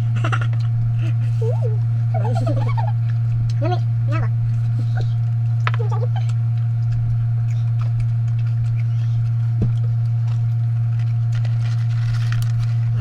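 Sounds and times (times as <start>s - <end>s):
steady low hum: 0.0s - 13.0s
eating clicks and taps: 5.4s - 10.4s.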